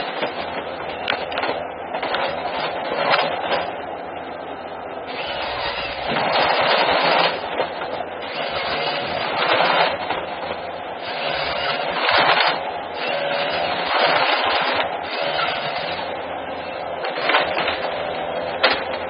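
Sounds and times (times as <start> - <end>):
forestry machine rattling: 5.1 - 19.0.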